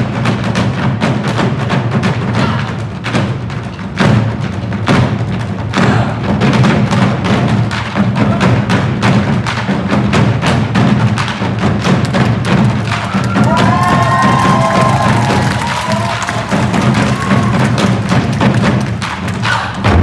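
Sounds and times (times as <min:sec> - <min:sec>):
drum ensemble beating: 0:00.0 - 0:20.0
audience whistles and cheers: 0:12.8 - 0:18.4.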